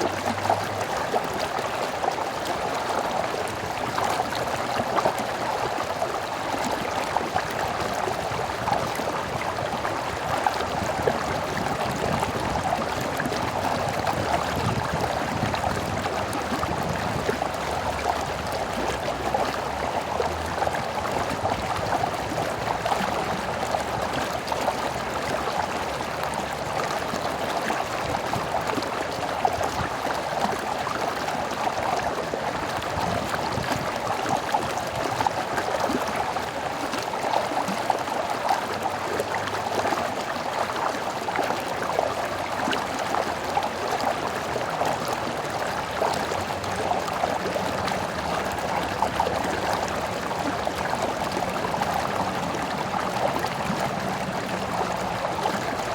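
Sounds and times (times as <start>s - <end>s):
stream babbling over stones: 0.0s - 55.9s.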